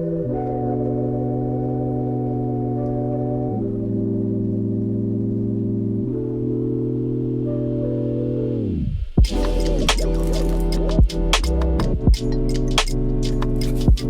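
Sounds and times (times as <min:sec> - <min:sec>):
organ-like keyboard chords: 0:00.0 - 0:08.7.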